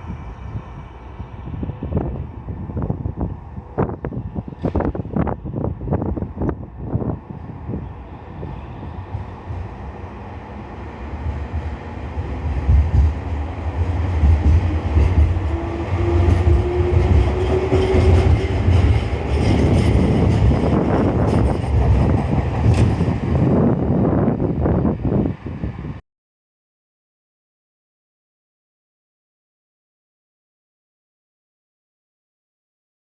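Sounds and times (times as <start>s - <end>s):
electric train rumbling past: 0.0s - 26.0s.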